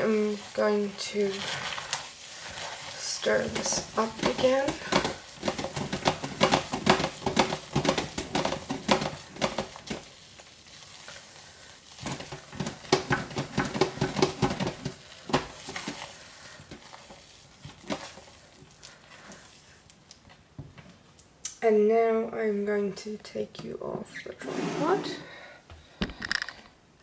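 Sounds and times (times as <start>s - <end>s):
thick paste stirred in pot: 0.0s - 20.3s.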